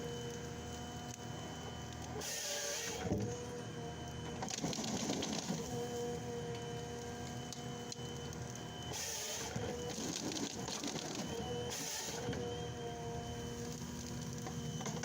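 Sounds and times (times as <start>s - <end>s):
engine and hydraulic whine: 0.0s - 15.0s
hiss: 11.7s - 12.2s.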